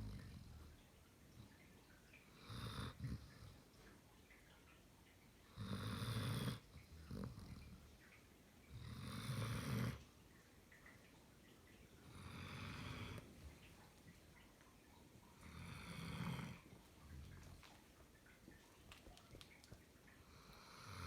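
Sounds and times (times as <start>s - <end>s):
dog snoring: 2.3s - 3.6s, 5.5s - 7.8s, 8.7s - 10.0s, 12.0s - 13.3s, 15.4s - 16.7s, 20.3s - 21.0s.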